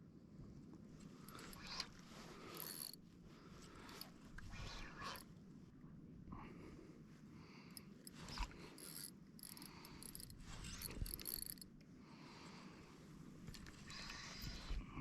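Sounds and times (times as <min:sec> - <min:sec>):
fishing reel whirring and clicking: 0:01.3 - 0:03.0, 0:03.7 - 0:05.2, 0:08.0 - 0:11.7, 0:13.5 - 0:14.8.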